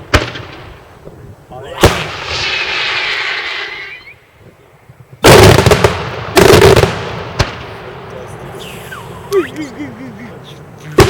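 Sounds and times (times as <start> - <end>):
fireworks bangs: 0.0 - 0.9, 1.7 - 3.9, 5.0 - 9.1
fireworks hissing crackle: 0.2 - 11.0.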